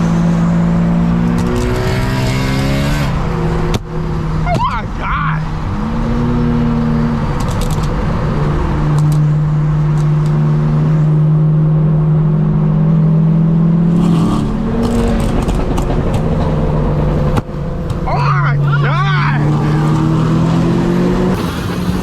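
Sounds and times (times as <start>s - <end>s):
car engine at high revs: 0.0s - 22.0s.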